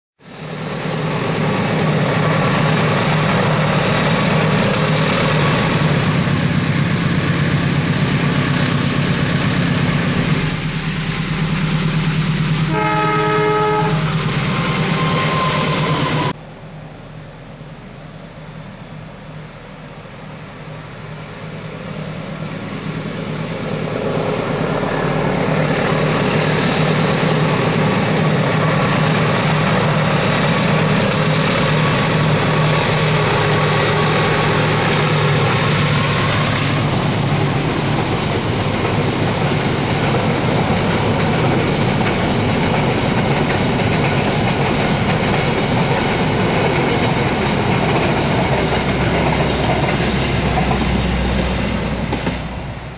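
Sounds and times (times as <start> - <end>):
hiss from wheels and rails: 0.2 - 52.9
locomotive engine hum: 0.2 - 52.9
wheels on rails: 0.8 - 12.4, 23.5 - 52.8.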